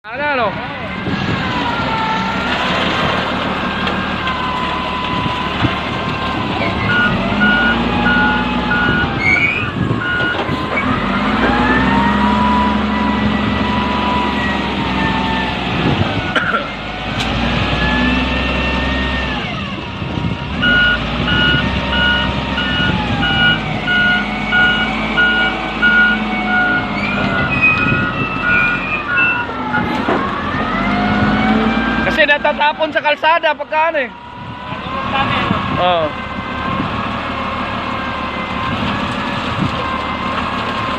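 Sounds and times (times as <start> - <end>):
truck engine revving: 0.2 - 40.9
reversing beeper beeps: 6.1 - 10.4, 20.6 - 29.9.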